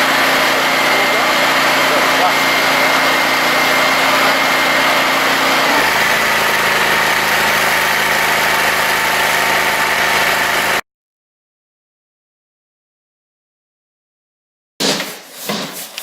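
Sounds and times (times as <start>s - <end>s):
engine running: 0.0s - 10.8s.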